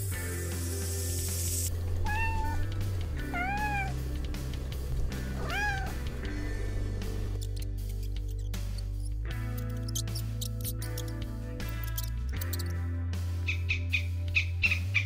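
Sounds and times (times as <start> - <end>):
rattlesnake rattle hissing: 0.0 - 1.8
cat meowing: 2.0 - 4.0, 5.3 - 6.0.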